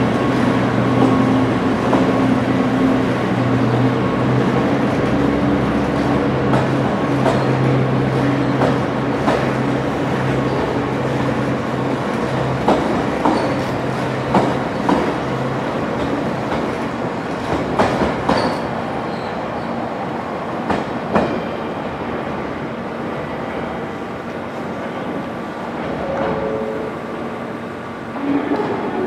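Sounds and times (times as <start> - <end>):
train rumble: 0.0 - 29.0
train wheels clacking over rail joints: 12.4 - 15.2, 16.0 - 18.7.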